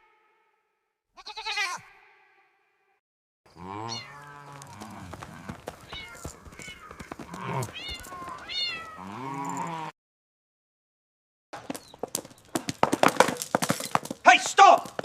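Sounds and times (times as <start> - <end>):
animal cries: 1.2 - 2.1, 3.6 - 9.9
quavering bleat-like animal call: 1.2 - 2.5, 3.5 - 9.9.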